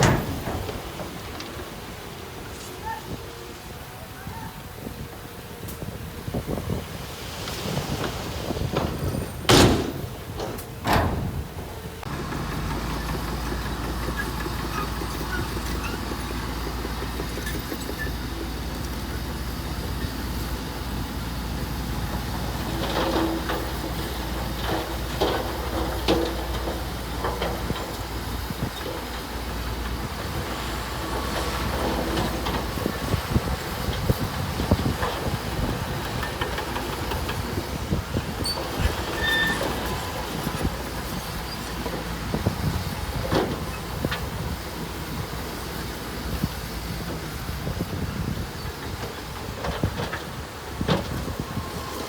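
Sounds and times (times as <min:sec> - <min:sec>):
metal clanks: 0:00.0 - 0:01.6, 0:08.7 - 0:11.6
diesel engine rumble: 0:00.0 - 0:52.0.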